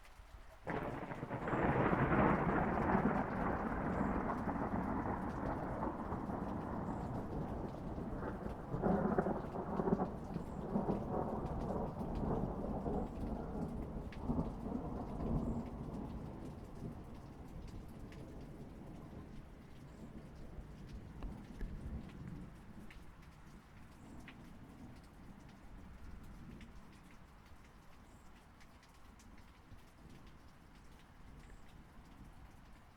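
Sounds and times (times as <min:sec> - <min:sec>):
steady rain: 0:00.0 - 0:32.9
thunder rolling: 0:00.7 - 0:19.4.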